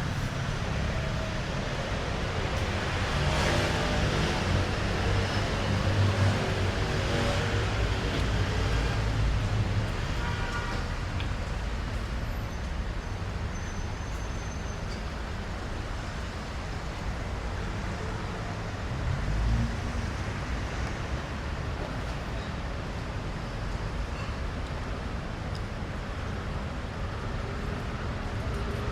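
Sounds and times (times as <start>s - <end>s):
cars passing: 0.0s - 13.4s.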